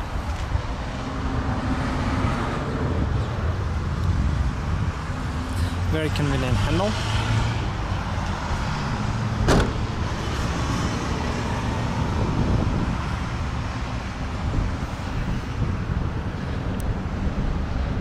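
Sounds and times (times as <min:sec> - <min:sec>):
car trunk lid thump: 0:09.4 - 0:09.8.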